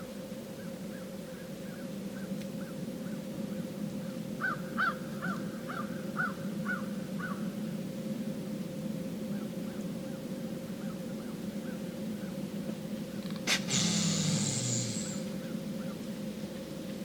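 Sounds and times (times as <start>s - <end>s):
steady low hum: 11.5s - 17.0s
bird calling short notes: 13.4s - 15.4s.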